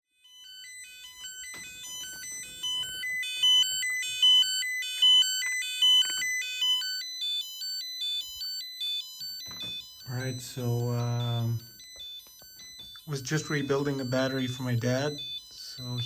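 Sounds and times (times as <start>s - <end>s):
spot welder buzzer beeping: 0.1s - 16.0s.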